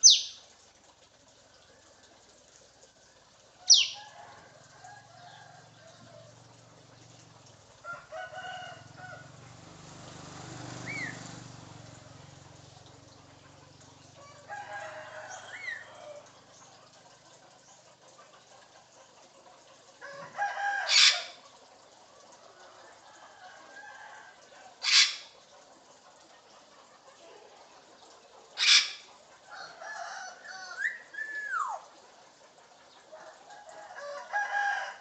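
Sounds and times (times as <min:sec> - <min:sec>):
parrot rooster-like crowing calls: 0:03.7 - 0:06.4, 0:07.8 - 0:09.4, 0:14.2 - 0:16.4, 0:20.0 - 0:21.4, 0:22.9 - 0:25.2, 0:28.6 - 0:31.8, 0:33.1 - 0:35.0.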